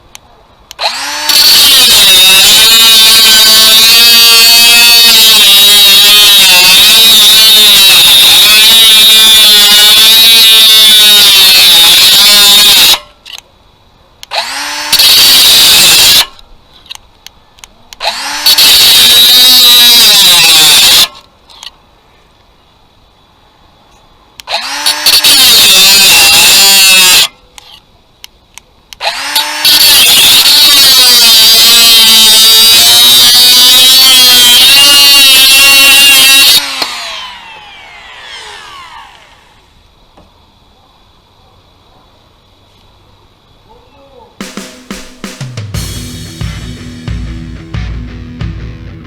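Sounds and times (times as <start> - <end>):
angle grinder cutting: 0.8 - 2.4, 14.3 - 15.1, 18.0 - 19.0, 24.5 - 25.2, 29.0 - 29.8, 36.5 - 39.7
angle grinder whining: 0.8 - 7.2, 14.3 - 15.4, 18.0 - 20.1, 24.5 - 25.4, 29.0 - 31.7, 34.0 - 39.8.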